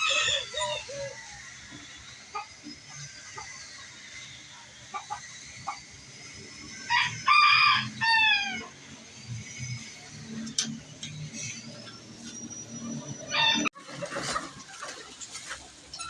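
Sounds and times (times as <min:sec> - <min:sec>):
rooster crowing: 0:00.0 - 0:01.8, 0:06.7 - 0:08.8, 0:13.2 - 0:13.7.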